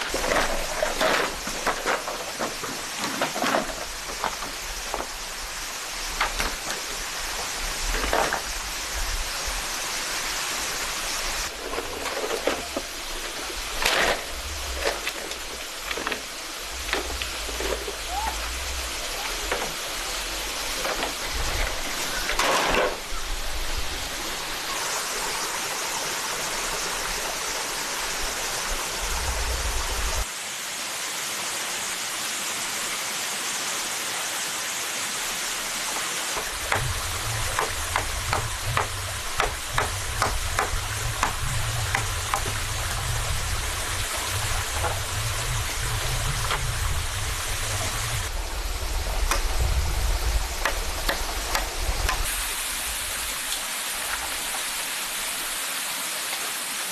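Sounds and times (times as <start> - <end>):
rushing water: 0.0 - 56.9
sharp knocks: 36.4 - 42.6.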